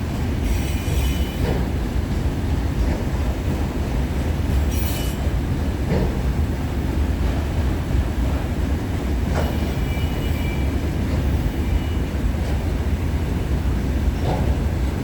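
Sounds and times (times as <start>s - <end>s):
freight train rumbling: 0.0s - 15.0s
faint high wheel squeal: 0.5s - 1.4s, 4.7s - 5.2s, 9.5s - 10.8s, 11.5s - 12.1s.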